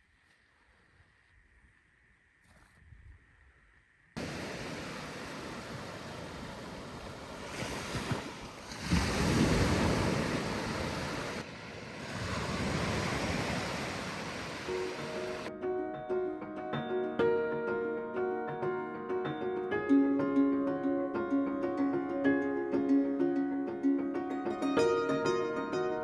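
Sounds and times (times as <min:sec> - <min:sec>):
wind: 0:00.0 - 0:15.5
waves breaking on shore: 0:04.2 - 0:15.5.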